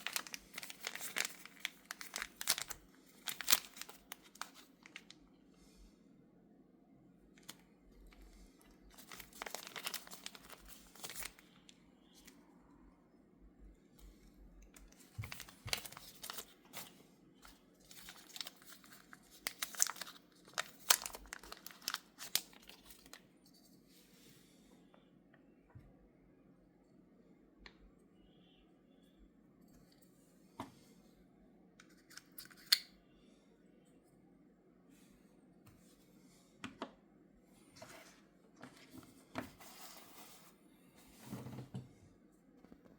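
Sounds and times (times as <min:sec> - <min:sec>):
packaging crinkling and tearing: 0:00.0 - 0:05.2, 0:08.9 - 0:11.5, 0:14.8 - 0:23.2.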